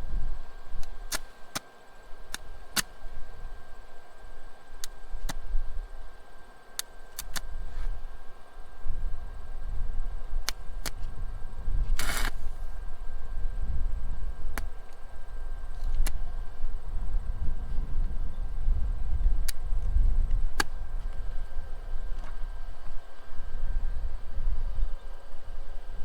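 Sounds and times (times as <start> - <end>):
steady low rumble: 0.0 - 26.0
welding arc pops and clicks: 0.7 - 3.0, 4.8 - 5.6, 6.7 - 8.0, 10.4 - 11.1, 11.9 - 12.7, 14.5 - 15.0, 15.7 - 16.2, 19.4 - 21.3
welding arc sizzling: 0.8 - 1.6, 11.9 - 12.8.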